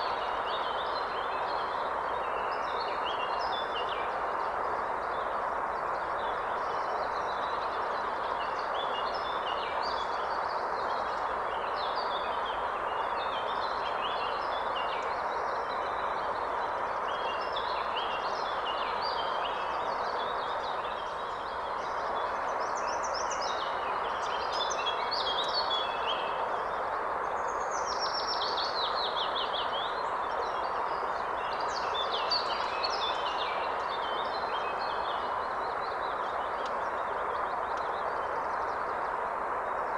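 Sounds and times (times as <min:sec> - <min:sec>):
songbirds chirping: 0:27.2 - 0:39.9.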